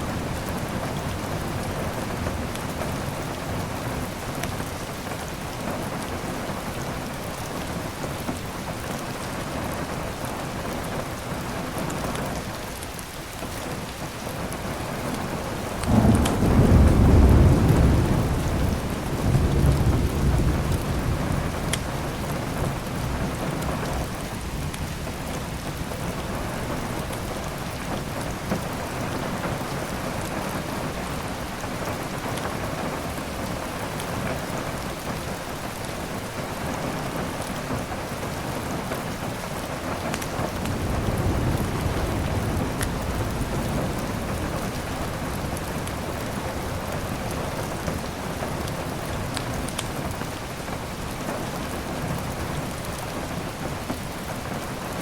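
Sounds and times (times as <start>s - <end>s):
heavy rain: 0.0s - 55.0s
thunder rumbling: 15.6s - 25.2s, 40.4s - 48.4s.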